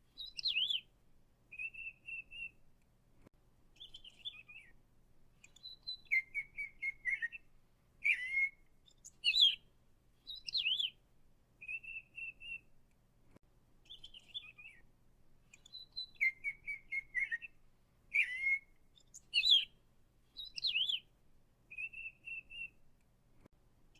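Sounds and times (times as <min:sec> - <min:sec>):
songbird chirping and whistling: 0:00.1 - 0:00.9, 0:01.5 - 0:02.6, 0:03.8 - 0:04.8, 0:05.4 - 0:11.0, 0:11.6 - 0:12.7, 0:13.8 - 0:14.9, 0:15.5 - 0:21.1, 0:21.7 - 0:22.8.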